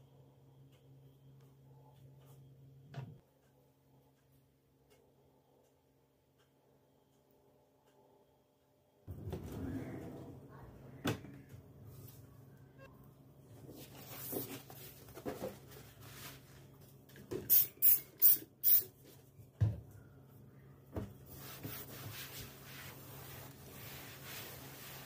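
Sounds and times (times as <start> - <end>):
spray bottle squirting: 17.5 - 18.9
soft rubbing: 21.3 - 25.0.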